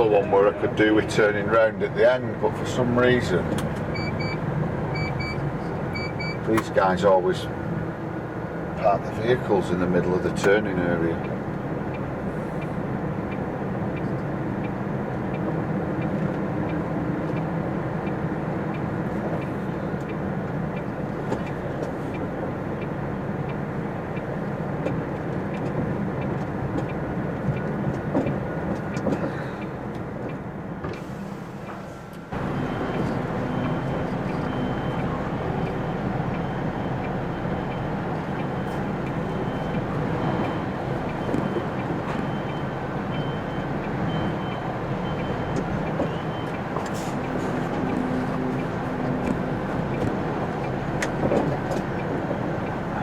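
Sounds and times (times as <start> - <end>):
lorry diesel engine running: 0.0 - 53.0
reversing alarm beeping: 3.9 - 6.4, 32.3 - 48.7.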